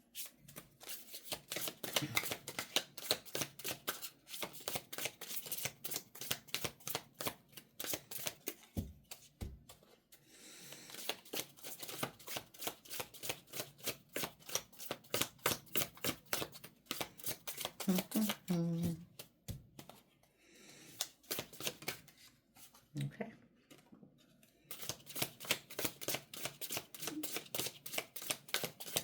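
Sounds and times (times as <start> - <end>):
cards being shuffled: 0.2 - 10.0, 10.9 - 20.1, 20.9 - 22.8, 24.7 - 29.0.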